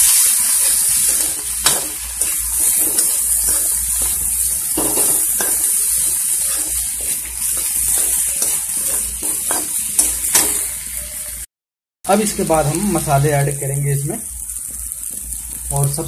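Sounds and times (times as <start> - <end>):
vegetables sizzling in hot oil: 0.0 - 11.5, 12.1 - 16.0
spoon scraping and knocking a pan: 1.0 - 10.7.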